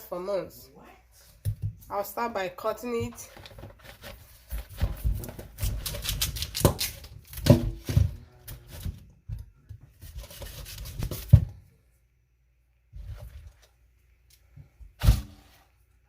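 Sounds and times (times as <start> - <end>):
knife cutting yam: 5.2 - 7.7.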